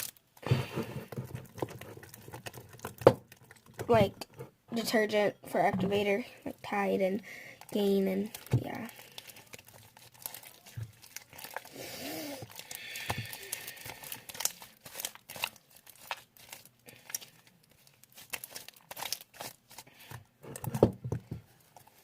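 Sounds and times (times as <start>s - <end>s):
slime crackling and popping: 0.0s - 0.4s, 7.6s - 20.0s.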